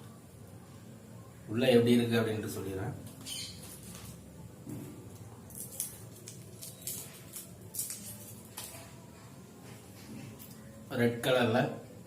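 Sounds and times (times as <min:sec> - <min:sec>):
chocolate wrapper crinkling: 0:05.4 - 0:08.8.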